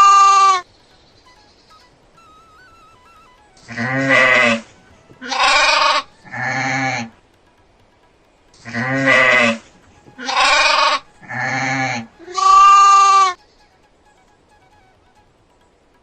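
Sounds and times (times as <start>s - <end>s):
goat bleating: 3.6s - 7.2s, 8.5s - 13.4s.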